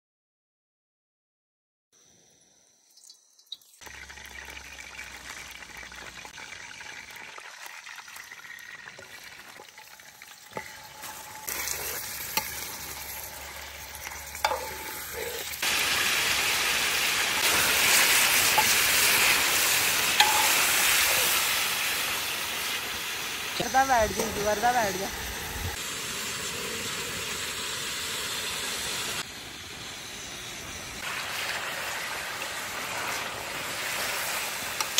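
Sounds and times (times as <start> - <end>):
chicken sizzling in hot oil: 2.1 - 34.9
utensil clinking in pan: 10.2 - 15.4, 20.1 - 21.3.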